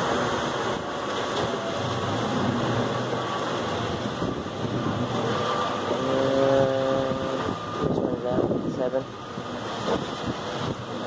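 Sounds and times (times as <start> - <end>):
boat engines running: 0.0 - 11.0
wind noise on microphone: 3.8 - 11.0.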